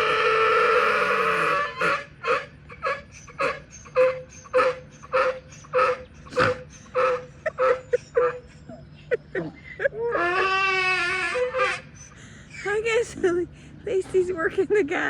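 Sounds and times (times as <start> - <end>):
donkey farting: 0.0 - 12.0
donkey braying: 0.0 - 14.6.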